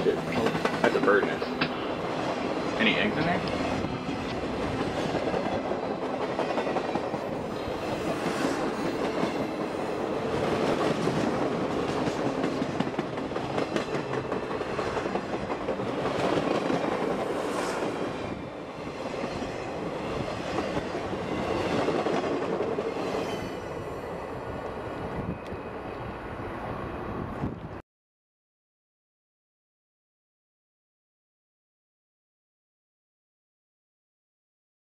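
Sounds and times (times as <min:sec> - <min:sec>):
train wheels clicking over joints: 0:00.0 - 0:09.8.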